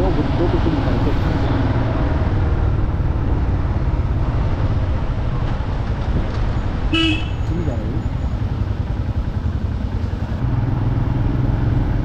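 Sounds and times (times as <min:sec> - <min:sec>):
wind noise on microphone: 0:01.1 - 0:07.3
motorcycle engine running: 0:05.7 - 0:12.0.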